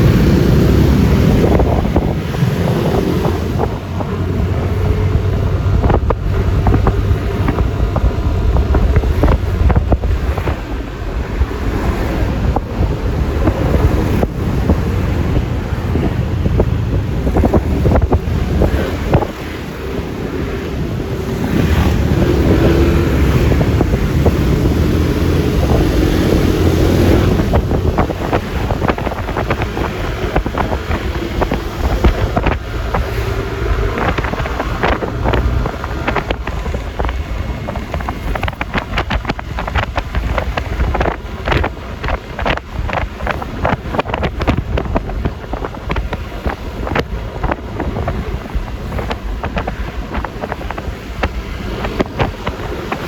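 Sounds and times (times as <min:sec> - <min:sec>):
road noise: 0:00.0 - 0:53.0
wind buffeting microphone: 0:00.0 - 0:53.0.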